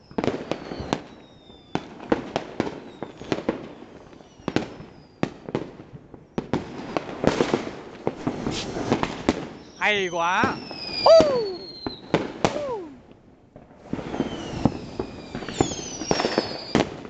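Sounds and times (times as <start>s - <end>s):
firework whistles falling in pitch: 0.0s - 2.0s, 2.7s - 5.2s, 8.2s - 13.0s, 13.9s - 17.0s
firework bangs: 0.0s - 17.0s
firework crackling: 6.3s - 17.0s.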